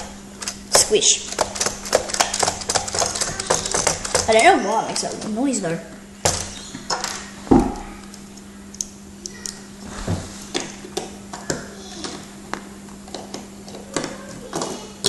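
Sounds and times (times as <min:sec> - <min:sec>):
low electrical hum: 0:00.0 - 0:15.0
plastic parts clicking and knocking: 0:01.3 - 0:05.3, 0:06.3 - 0:09.6, 0:10.5 - 0:15.0.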